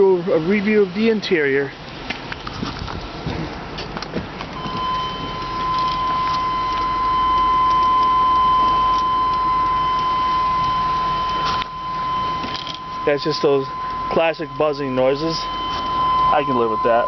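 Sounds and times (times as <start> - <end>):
car warning buzzer: 4.6 - 17.0.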